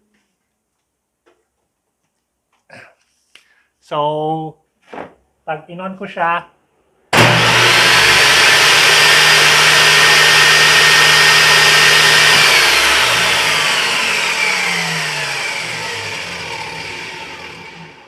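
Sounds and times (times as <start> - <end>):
table saw running: 7.1 - 18.0.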